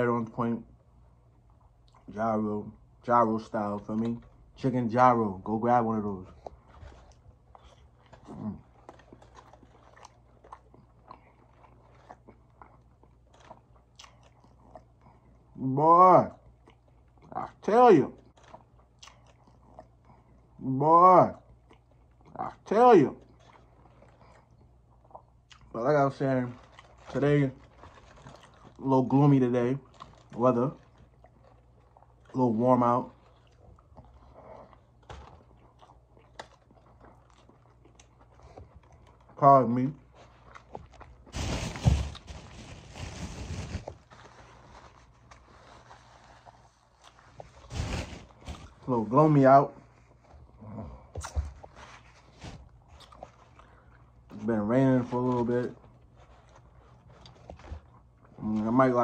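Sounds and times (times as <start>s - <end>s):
faint chewing: 5.5s - 15.6s, 16.3s - 20.6s, 21.3s - 59.0s
wet chewing clicks: 6.4s - 15.4s, 18.2s - 20.4s, 29.8s - 39.4s.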